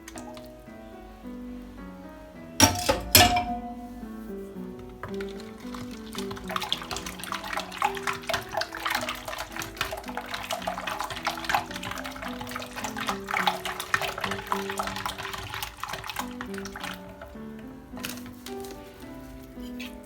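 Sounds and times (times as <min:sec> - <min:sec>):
background music: 0:00.0 - 0:20.0
whisk clinking in bowl: 0:02.6 - 0:04.1.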